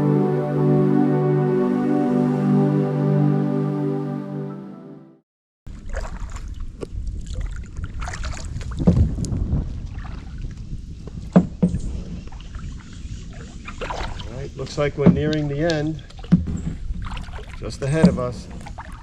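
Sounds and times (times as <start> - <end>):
paddle splashing in water: 5.7 - 19.0
wind rumble on microphone: 5.7 - 19.0.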